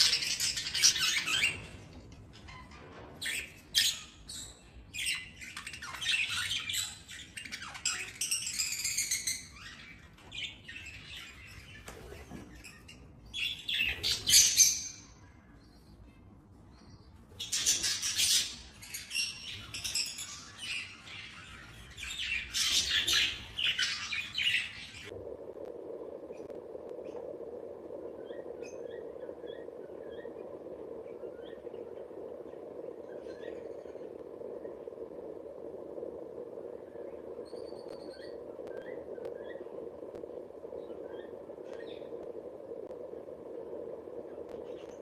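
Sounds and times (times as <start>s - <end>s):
steady hum: 16.3s - 45.0s.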